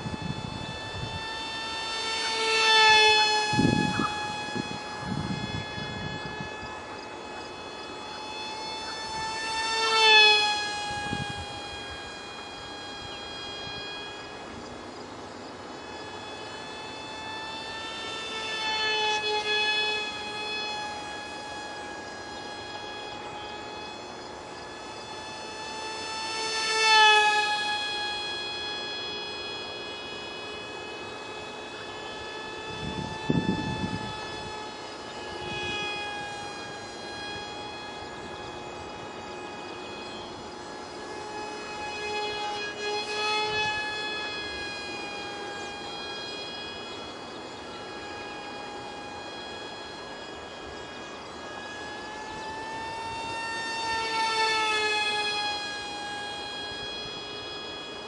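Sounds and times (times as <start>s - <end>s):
model plane motor whining: 0.0s - 58.0s
wind buffeting microphone: 3.4s - 7.5s, 32.7s - 34.7s.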